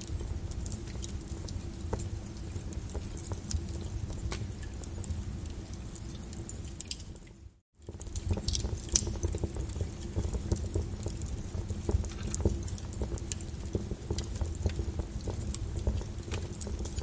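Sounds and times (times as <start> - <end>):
low fire rumble: 0.0 - 17.0
wood fire crackling: 0.0 - 17.0
sharp pops and snaps: 7.8 - 17.0.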